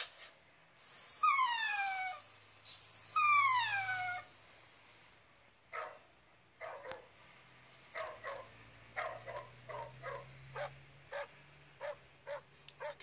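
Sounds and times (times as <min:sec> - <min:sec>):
dog crying through phone speaker: 0:00.8 - 0:04.4.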